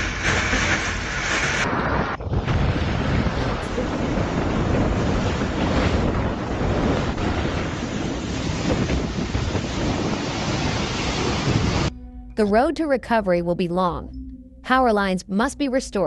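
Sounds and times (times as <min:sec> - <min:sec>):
churning water: 0:00.0 - 0:11.9
strong wind rushing: 0:00.0 - 0:11.9
wind buffeting microphone: 0:00.0 - 0:11.9.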